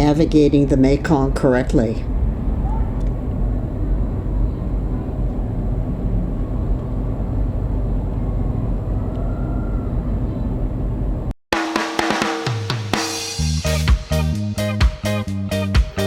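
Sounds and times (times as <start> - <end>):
ship deck low rumble: 0.0 - 11.3
music with drums: 11.5 - 16.0.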